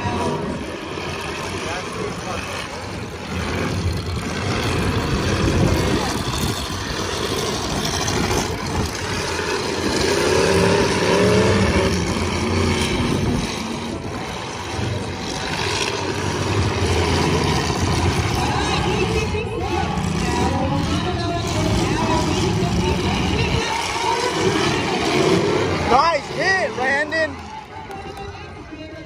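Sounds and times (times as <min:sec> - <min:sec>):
car engines revving: 0:00.0 - 0:29.0.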